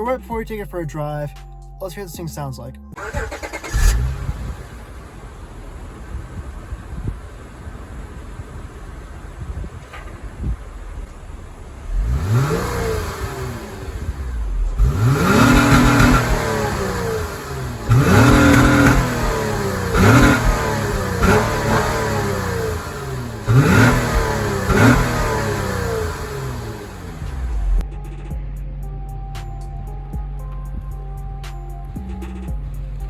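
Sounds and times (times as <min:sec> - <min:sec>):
car engine revving: 0:03.0 - 0:27.9.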